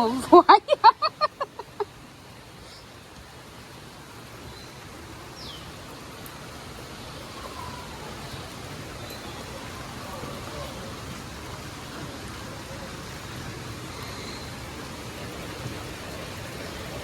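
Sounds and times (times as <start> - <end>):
voice: 0.0 - 0.8
steady outdoor hiss: 0.0 - 17.0.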